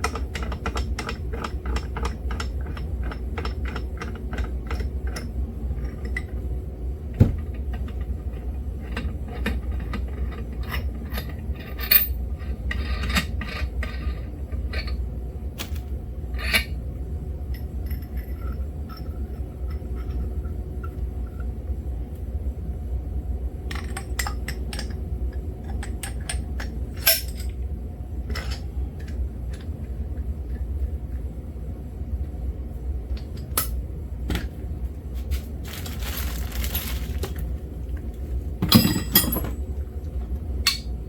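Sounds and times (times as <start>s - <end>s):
steady low hum: 0.0s - 41.0s
metal tools clinking: 35.7s - 37.4s, 38.6s - 39.6s.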